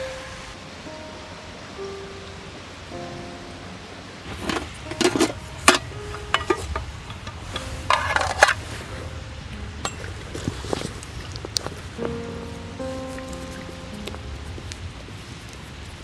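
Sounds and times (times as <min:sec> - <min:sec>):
camp gear clinking and knocking: 0:04.3 - 0:16.0.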